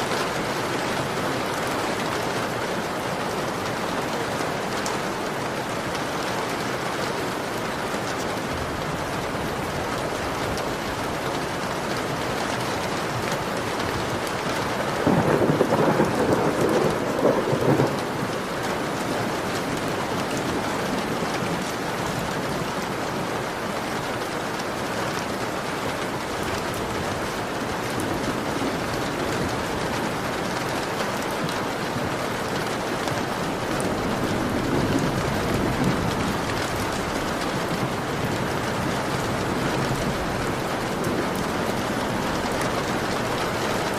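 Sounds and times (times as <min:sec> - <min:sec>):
heavy rain on a window: 0:00.0 - 0:43.9
thunder rumbling: 0:13.0 - 0:22.8, 0:32.7 - 0:43.9.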